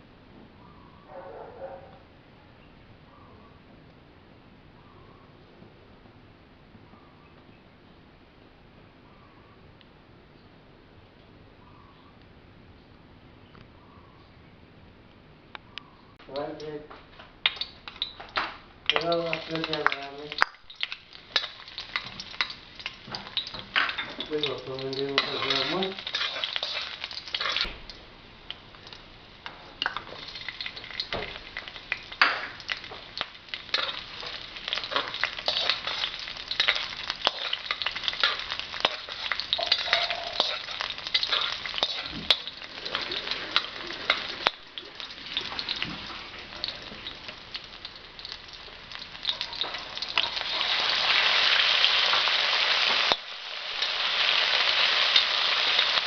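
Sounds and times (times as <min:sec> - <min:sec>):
food sizzling in hot oil: 0:17.4 - 0:56.0
metal ladle scraping a wok: 0:24.8 - 0:27.6, 0:33.7 - 0:45.8.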